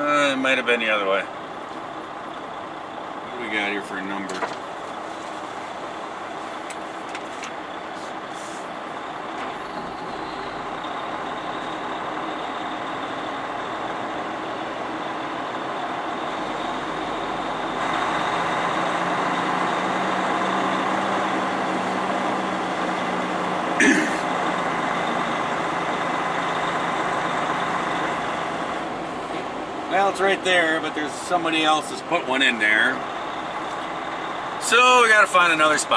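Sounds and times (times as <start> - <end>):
truck diesel engine running: 0.0 - 35.9
air brake hiss: 8.0 - 8.8.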